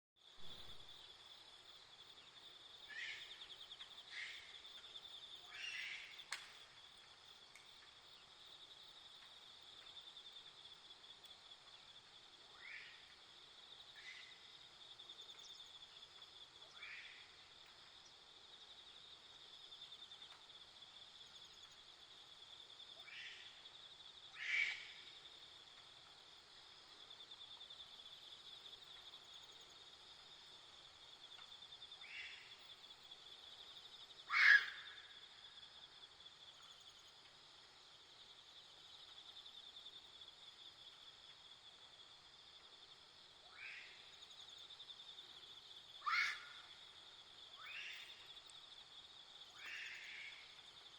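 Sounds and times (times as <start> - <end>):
insect trill: 0.2 - 50.9
short animal calls: 34.3 - 34.9, 46.0 - 46.6.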